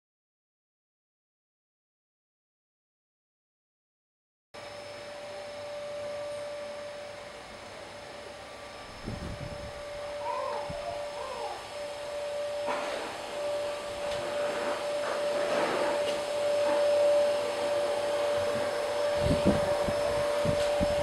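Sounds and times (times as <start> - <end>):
small electric motor whining: 4.6 - 21.0.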